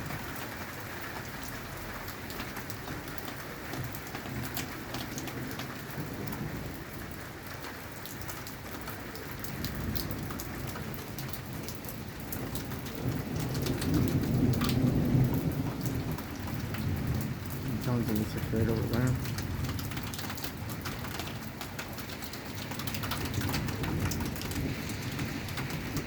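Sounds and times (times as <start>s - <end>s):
raindrops ticking on a surface: 0.0s - 26.0s
steady rain falling: 0.0s - 26.0s
low rolling thunder: 9.4s - 26.0s.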